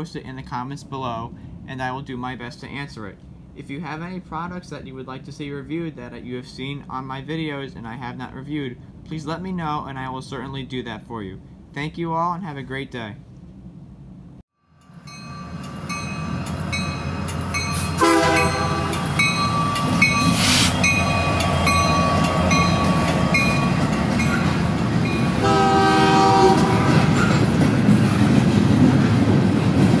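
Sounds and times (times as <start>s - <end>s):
train approaching: 14.6s - 30.0s
train horn: 17.9s - 19.2s, 25.4s - 27.3s.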